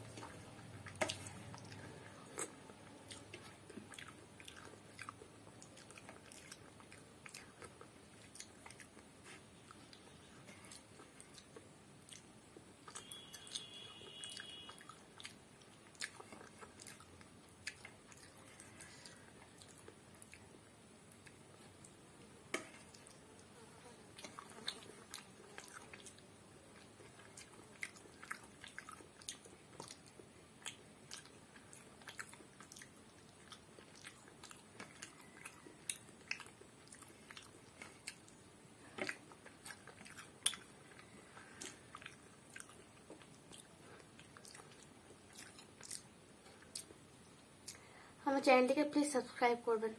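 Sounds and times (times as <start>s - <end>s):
wet chewing: 0.0s - 23.2s, 24.2s - 47.9s
mouth clicks and lip smacks: 39.0s - 47.0s, 47.6s - 47.9s.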